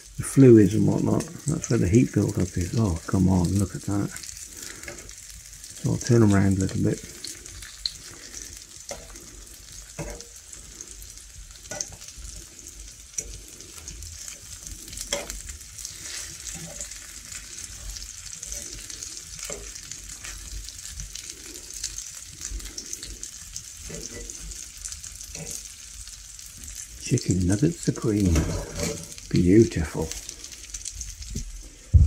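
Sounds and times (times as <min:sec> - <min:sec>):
chicken sizzling in oil: 0:00.0 - 0:32.0
metal tongs scraping a pan: 0:03.8 - 0:25.8, 0:27.9 - 0:29.5.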